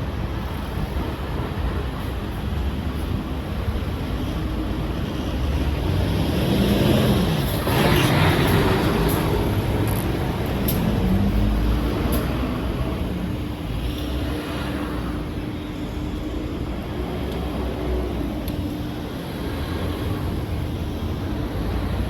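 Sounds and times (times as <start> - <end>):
traffic rumble: 0.0 - 22.0
passing vehicle: 3.8 - 22.0.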